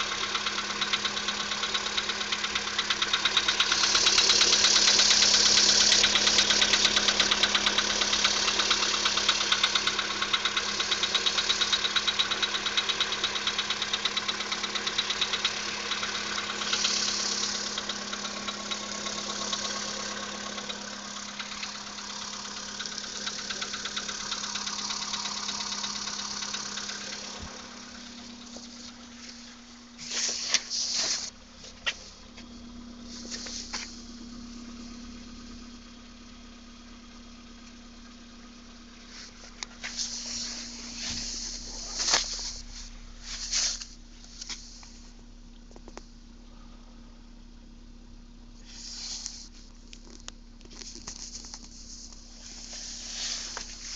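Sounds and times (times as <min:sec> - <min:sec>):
engine idling with rapid knock: 0:00.0 - 0:53.9.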